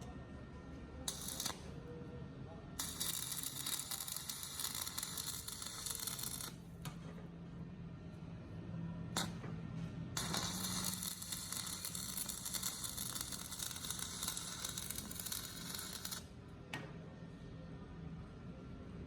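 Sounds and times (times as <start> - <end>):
arc welding crackling sizzle: 1.1 - 1.7, 2.8 - 6.7, 9.2 - 9.4, 10.2 - 16.3.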